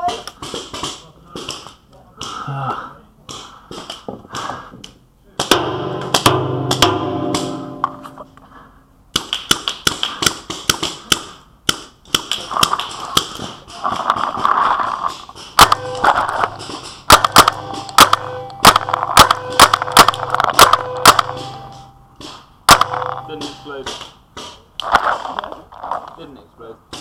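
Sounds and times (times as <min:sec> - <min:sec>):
paintball guns firing: 0:00.0 - 0:02.4, 0:09.1 - 0:26.0.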